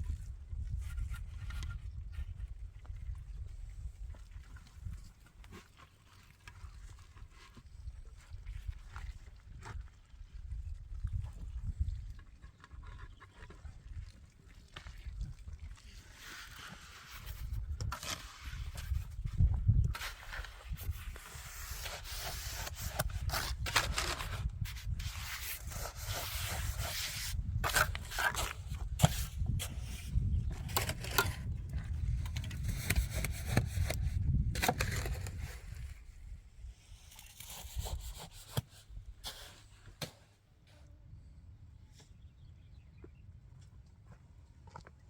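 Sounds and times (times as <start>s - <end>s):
hand scraping and rubbing: 16.2s - 19.3s, 19.9s - 31.5s.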